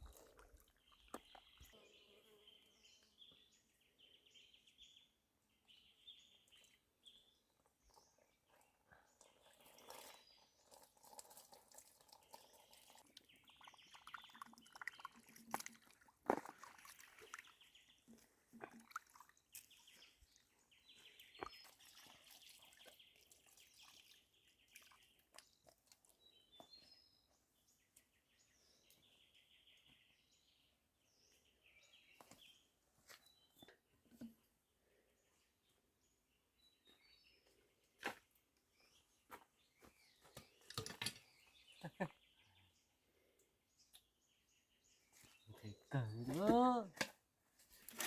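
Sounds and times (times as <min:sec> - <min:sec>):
faint bird chirping: 0:00.0 - 0:15.2.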